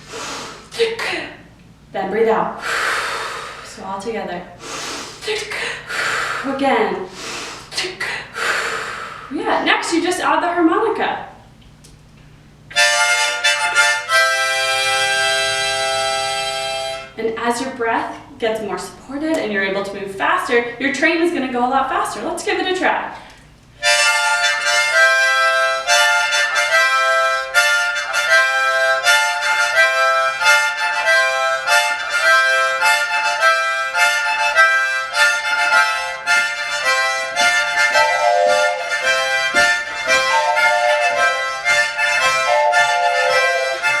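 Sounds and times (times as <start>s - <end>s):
harmonica chugging chords: 12.7s - 17.2s, 23.8s - 44.0s.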